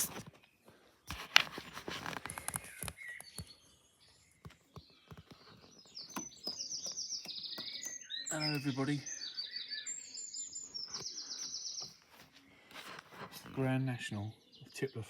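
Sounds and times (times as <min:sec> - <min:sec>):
songbirds chirping and singing: 0:00.0 - 0:15.0
footsteps or rustling: 0:01.1 - 0:03.4, 0:11.0 - 0:13.6.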